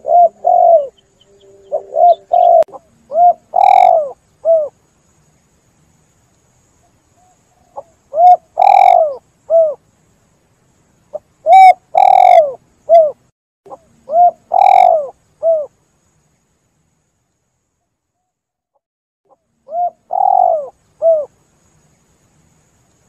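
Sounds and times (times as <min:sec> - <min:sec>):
dove cooing: 0:00.0 - 0:04.8, 0:07.2 - 0:09.8, 0:11.4 - 0:15.7, 0:19.7 - 0:21.3.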